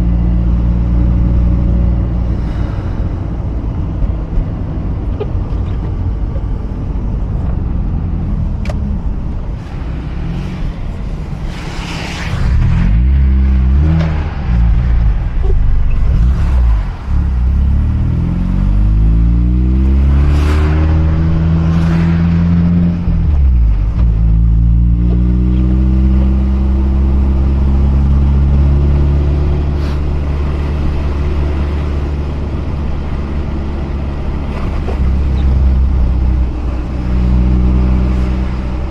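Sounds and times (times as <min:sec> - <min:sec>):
tyre and road noise: 0:00.0 - 0:38.9
rotary engine revving: 0:09.6 - 0:38.9.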